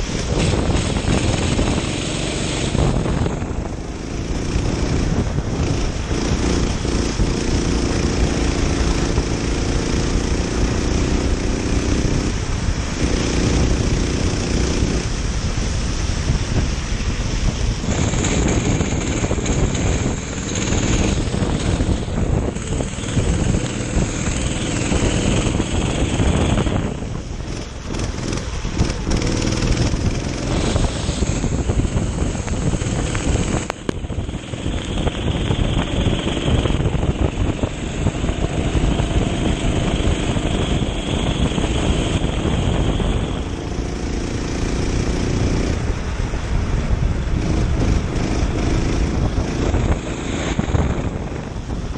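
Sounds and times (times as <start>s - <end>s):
kart engine revving: 0.0s - 15.9s, 17.6s - 46.0s, 47.2s - 51.9s
wind noise on microphone: 0.0s - 51.9s.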